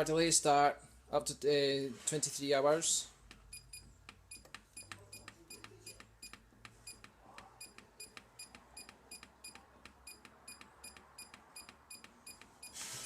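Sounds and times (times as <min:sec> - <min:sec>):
dryer panel click-beeps: 0:03.5 - 0:12.8.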